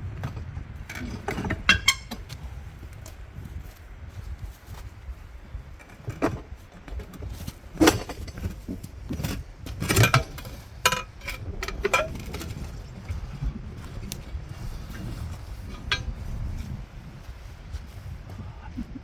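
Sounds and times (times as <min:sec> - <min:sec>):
metal clinks and clanks: 0:07.8 - 0:12.7.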